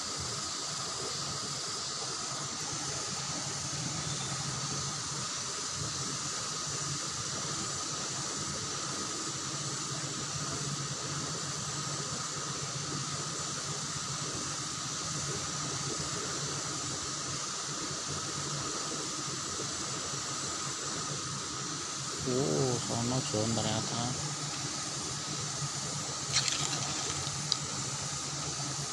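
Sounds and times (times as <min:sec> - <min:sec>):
river current rushing: 0:22.8 - 0:28.0.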